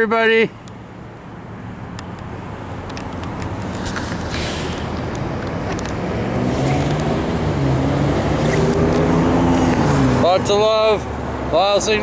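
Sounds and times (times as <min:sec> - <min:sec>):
motor vehicle running: 0:02.7 - 0:11.5
low engine hum: 0:04.6 - 0:10.3.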